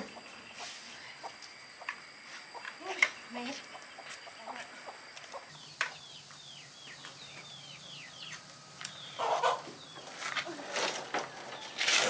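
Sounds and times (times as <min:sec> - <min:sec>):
chickens peeping: 0:00.0 - 0:12.0
loud chicken call: 0:09.2 - 0:09.8.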